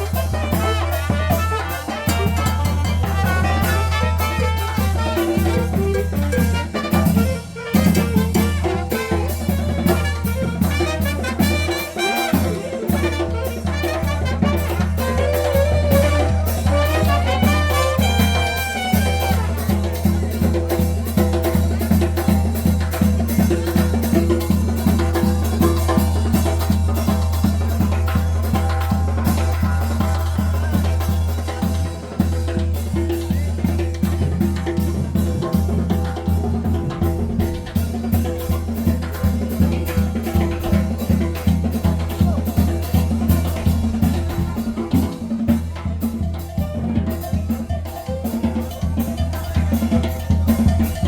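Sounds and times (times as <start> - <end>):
trumpets playing tune: 0.0 - 19.8
drums and percussion beat: 0.0 - 51.0.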